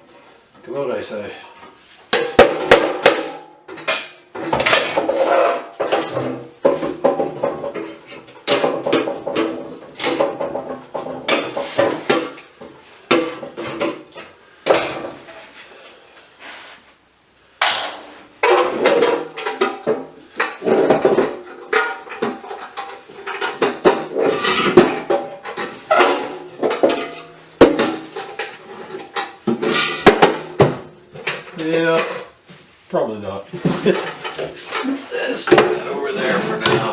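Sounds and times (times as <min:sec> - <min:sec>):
metal knocking and clanking: 0:02.1 - 0:15.2.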